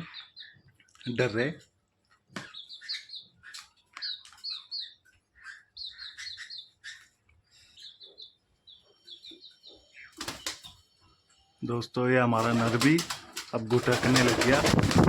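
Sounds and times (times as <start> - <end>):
cage birds chirping: 0.0 - 15.0.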